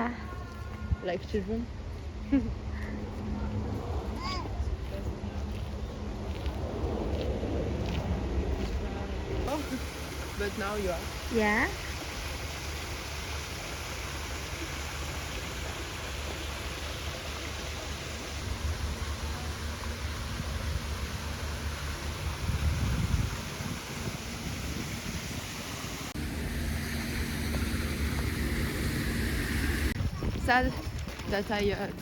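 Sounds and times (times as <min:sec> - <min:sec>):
wind rumbling on microphone: 0:00.0 - 0:10.2, 0:18.3 - 0:32.0
steady outdoor hiss: 0:00.0 - 0:30.7.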